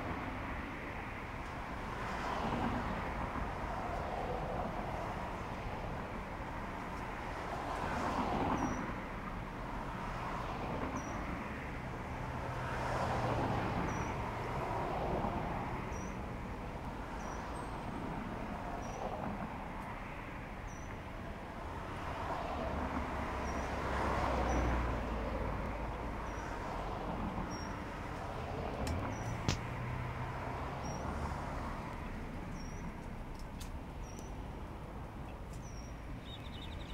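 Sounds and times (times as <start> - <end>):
cars passing: 0.0 - 36.9
bird chirping: 35.2 - 36.9.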